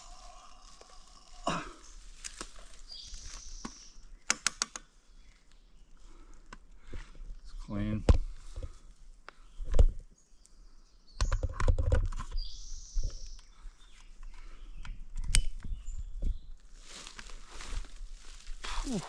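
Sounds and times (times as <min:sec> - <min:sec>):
footsteps on rocky ground: 0:00.0 - 0:03.6.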